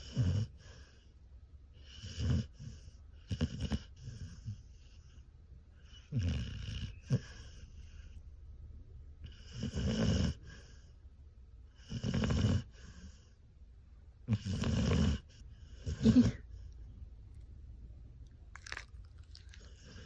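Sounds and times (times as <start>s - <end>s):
dog snoring: 0.0s - 1.1s, 1.8s - 5.2s, 5.8s - 8.2s, 9.2s - 10.9s, 11.7s - 13.4s, 14.2s - 16.4s, 19.3s - 20.0s.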